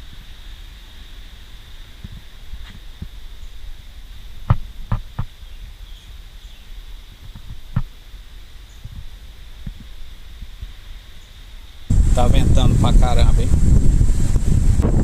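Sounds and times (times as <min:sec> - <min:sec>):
wind buffeting microphone: 0:08.8 - 0:10.8, 0:11.9 - 0:15.0.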